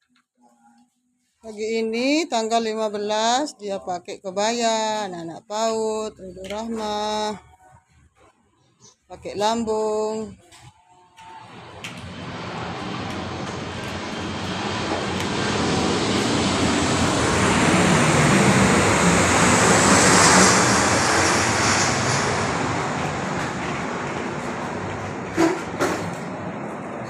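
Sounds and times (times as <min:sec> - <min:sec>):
airplane flying overhead: 0:11.2 - 0:27.0.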